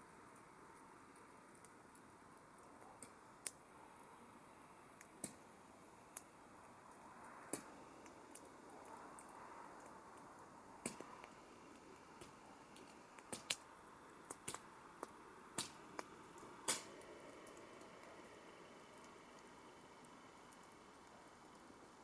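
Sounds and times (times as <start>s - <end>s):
soft fire hiss: 0.0s - 22.0s
campfire crackling and popping: 0.1s - 22.0s.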